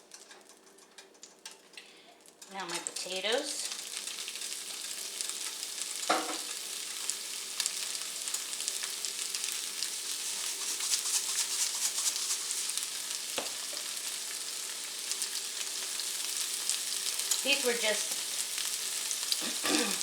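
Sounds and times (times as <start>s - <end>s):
oil sizzling in a skillet: 0.0s - 20.0s
knocks against a pan: 6.1s - 6.5s.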